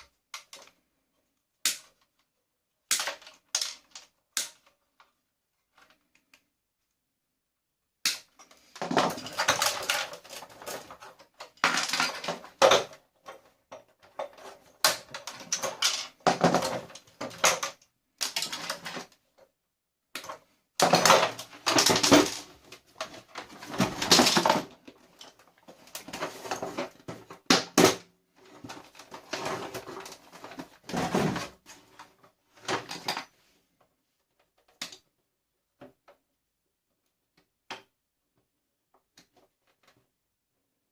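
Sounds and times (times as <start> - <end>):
plastic and metal parts clattering: 1.8 - 6.4, 8.2 - 19.5, 20.1 - 33.5.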